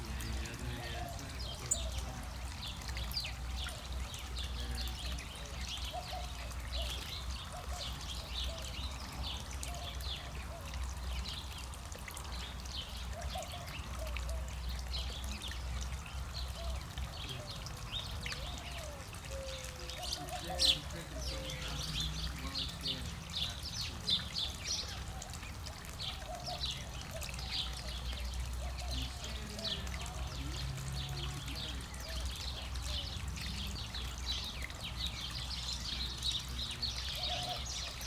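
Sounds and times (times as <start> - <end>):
water trickling and splashing: 0.0 - 38.0.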